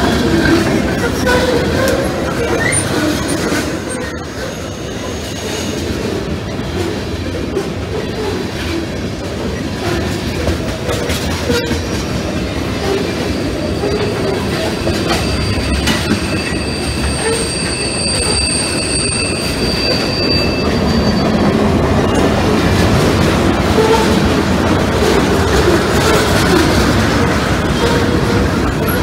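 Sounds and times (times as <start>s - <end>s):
freight train rolling past: 0.0s - 29.0s
wheels clickety-clack on rail: 0.0s - 29.0s
high wheel squeal: 12.8s - 22.6s.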